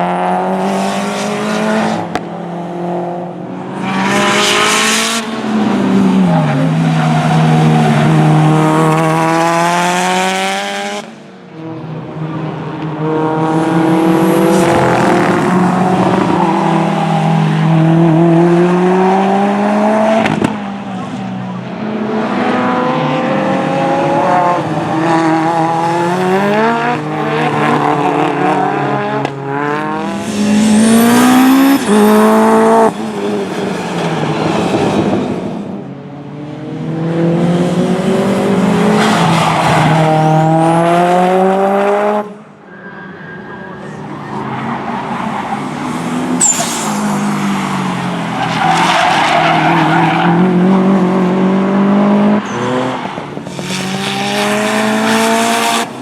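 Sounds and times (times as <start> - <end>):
race car engines revving: 0.0 - 56.0
tyre squeal: 42.6 - 50.4.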